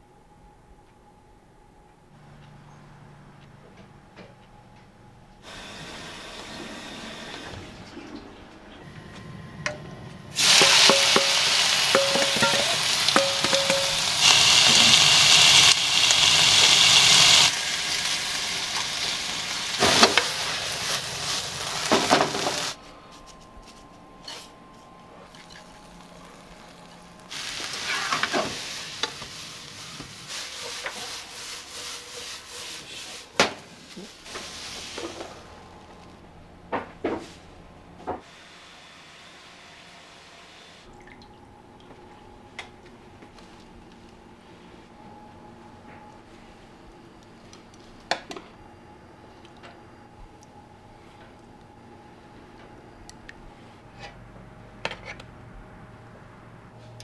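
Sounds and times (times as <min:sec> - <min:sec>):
food sizzling on a griddle: 0:10.4 - 0:22.8, 0:26.0 - 0:35.3.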